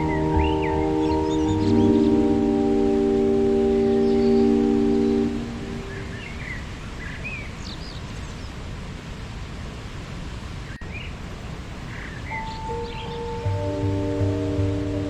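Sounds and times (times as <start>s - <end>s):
meditation music tones: 0.0s - 6.5s, 12.3s - 15.0s
waterfall rushing: 0.0s - 7.5s, 9.0s - 15.0s
small birds chirping: 0.0s - 8.6s, 10.7s - 14.3s.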